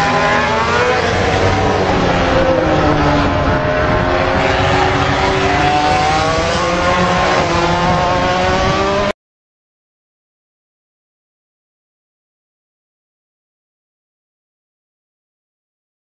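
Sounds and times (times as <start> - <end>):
engine running at high revs: 0.0 - 9.2.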